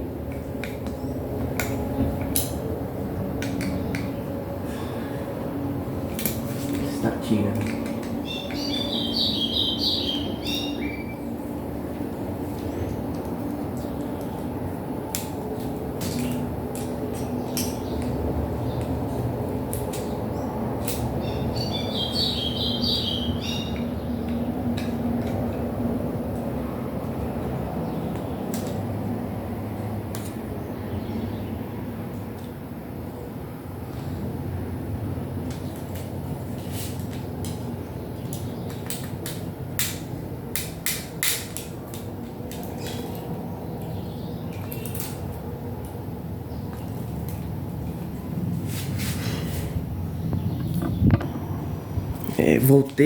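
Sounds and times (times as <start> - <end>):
clicks and knocks of tools: 3.4 - 4.2, 7.5 - 8.6, 15.1 - 18.2
small bird chirping: 8.2 - 11.3, 21.2 - 24.5.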